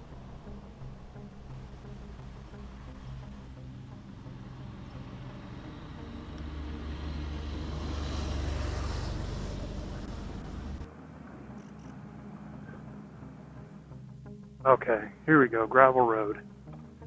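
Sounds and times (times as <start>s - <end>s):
motorcycle engine running: 0.0s - 11.8s
road and wind noise: 0.0s - 17.0s.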